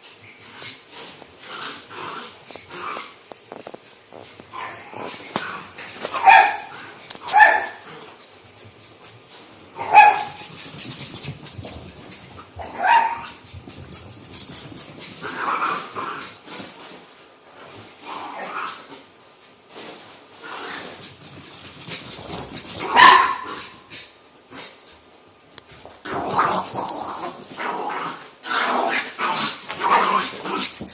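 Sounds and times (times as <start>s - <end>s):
dogs barking: 6.1s - 7.8s, 9.8s - 10.5s, 22.9s - 23.7s.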